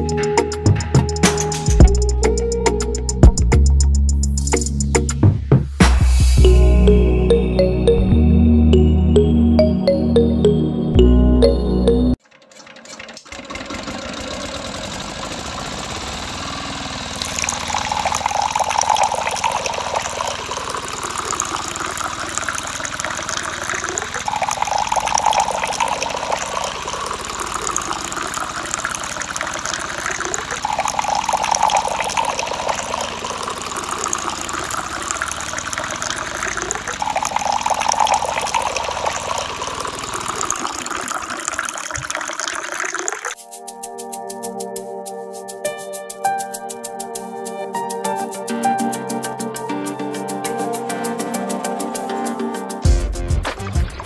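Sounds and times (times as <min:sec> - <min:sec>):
water gushing and splashing: 0:12.4 - 0:43.4.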